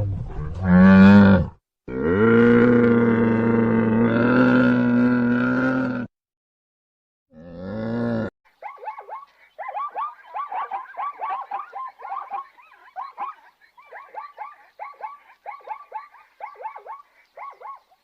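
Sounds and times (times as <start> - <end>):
chorus of high animal calls: 8.6 - 18.0.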